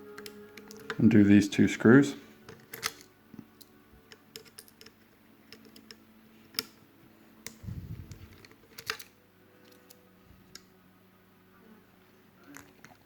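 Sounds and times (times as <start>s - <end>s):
screwdriver clicks on metal parts: 0.2s - 1.0s, 2.5s - 6.8s, 7.4s - 10.6s
low handling rumble: 7.6s - 8.3s.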